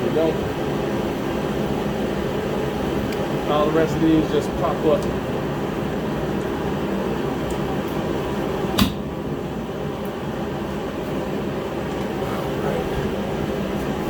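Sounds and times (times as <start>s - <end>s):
heater humming: 0.0s - 14.0s.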